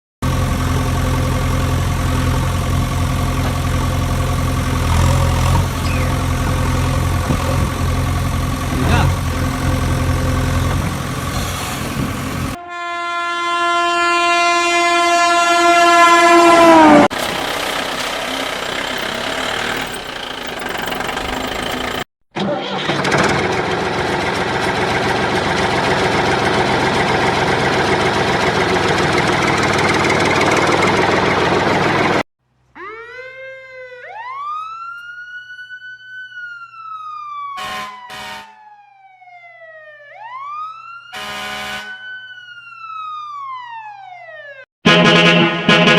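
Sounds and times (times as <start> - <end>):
engine rumble: 0.2 - 12.6, 16.7 - 22.0, 23.1 - 32.2
wailing siren: 12.0 - 22.0, 32.8 - 45.9.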